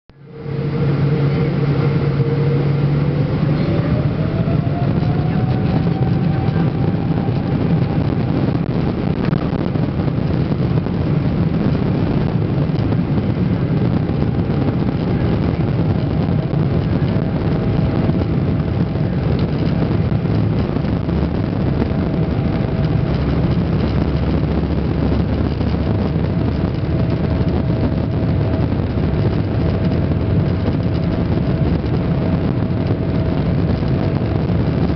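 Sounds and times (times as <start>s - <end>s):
low engine rumble: 0.1s - 34.9s
jet engines spooling up: 0.2s - 23.8s.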